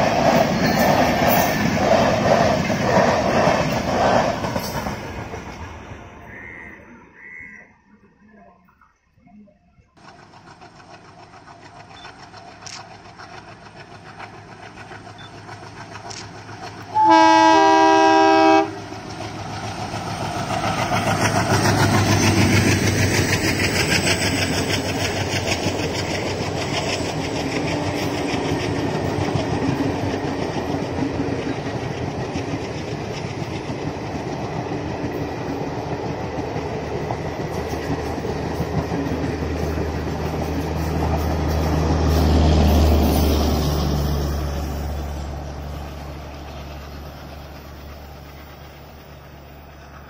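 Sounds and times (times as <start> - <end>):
train wheels clattering on rails: 0.0 - 5.8, 10.0 - 50.0
diesel locomotive engine passing: 0.0 - 8.8, 10.0 - 50.0
two-tone train horn: 16.9 - 18.8.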